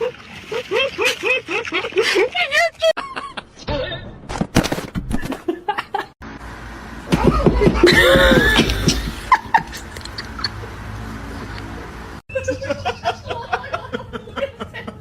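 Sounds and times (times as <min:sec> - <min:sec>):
person laughing: 0:00.5 - 0:03.5, 0:07.1 - 0:10.7.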